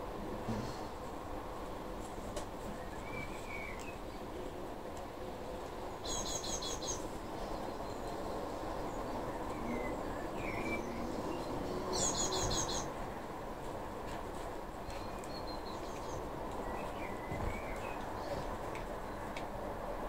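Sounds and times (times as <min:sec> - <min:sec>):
bird chirping rapidly: 0:06.0 - 0:07.0, 0:09.6 - 0:12.9.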